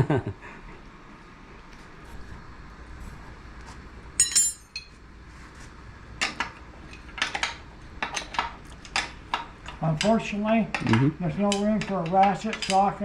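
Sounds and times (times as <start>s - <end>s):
wrench clinking on metal: 4.2s - 4.9s, 6.3s - 13.0s.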